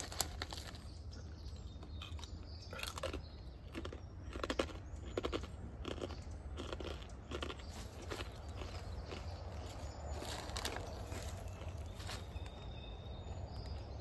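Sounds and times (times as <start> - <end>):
crackling and rustling handling noise: 0.0 - 1.0
sharp crunches: 2.0 - 12.3.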